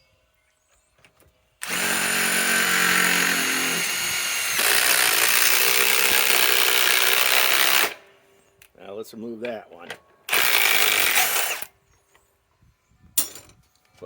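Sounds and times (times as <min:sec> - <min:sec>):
impact wrench driving screw into wood: 0:01.6 - 0:08.0, 0:10.3 - 0:11.7.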